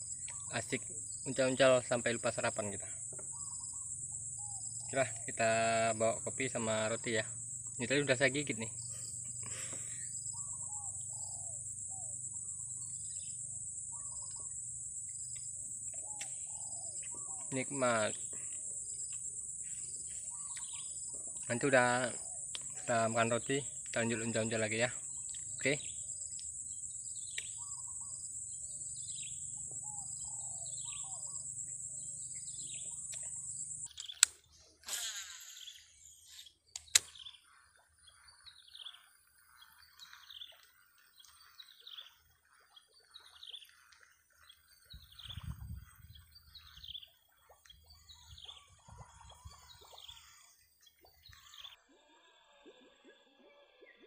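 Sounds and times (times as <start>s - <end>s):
high insect drone: 0.0s - 37.7s
bird chirping: 0.0s - 52.0s
sharp clicks: 33.9s - 34.4s, 36.7s - 37.2s.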